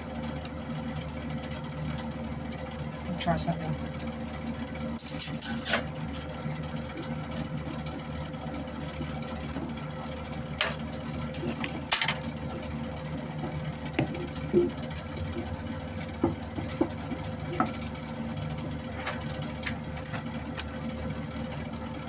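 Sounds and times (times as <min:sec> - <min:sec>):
welder wire-feed motor whirring: 0:04.7 - 0:16.3.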